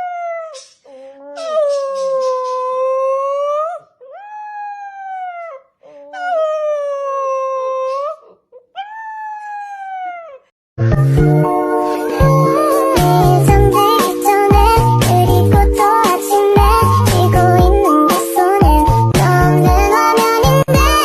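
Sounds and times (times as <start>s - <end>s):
dog howling: 1.2s - 5.6s, 6.2s - 10.4s
loud music: 10.8s - 21.0s.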